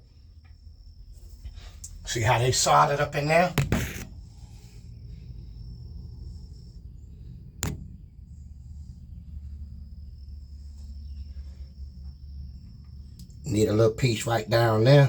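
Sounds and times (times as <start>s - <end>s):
faint high-pitched hum: 0.0s - 15.0s
low steady rumble: 0.0s - 15.0s
sharp click: 3.6s - 4.1s, 7.6s - 8.0s.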